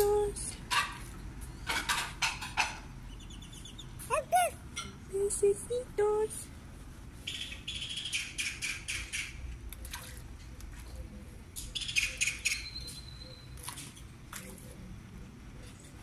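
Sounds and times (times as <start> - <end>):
birds chirping: 1.2 - 6.4, 7.2 - 9.9, 11.0 - 13.8.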